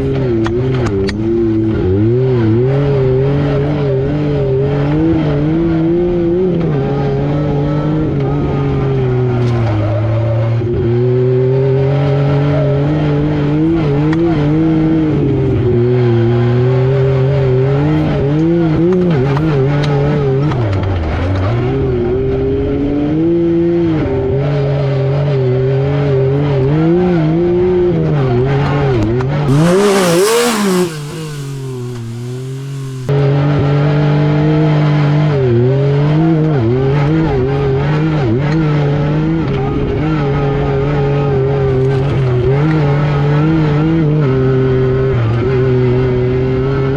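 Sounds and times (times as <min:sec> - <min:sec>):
loud rushing noise: 0:29.5 - 0:33.1
engine accelerating and backing off: 0:29.5 - 0:33.2.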